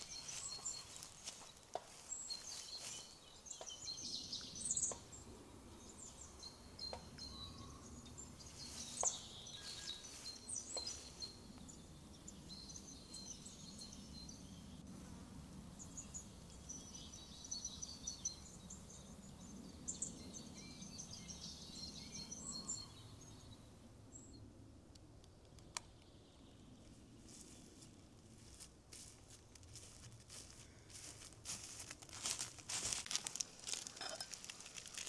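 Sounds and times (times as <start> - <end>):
birds chirping and twittering: 0.0 - 14.8, 15.8 - 24.5.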